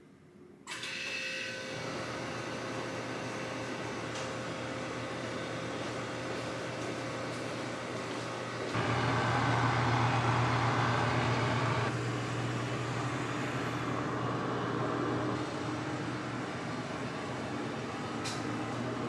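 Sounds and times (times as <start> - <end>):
machine hum with low drone: 8.7 - 19.0.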